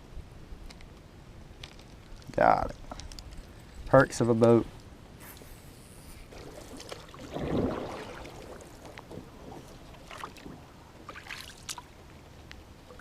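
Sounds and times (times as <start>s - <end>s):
kayak paddle swishing through water: 5.2s - 12.2s
faint water wash: 5.2s - 13.0s.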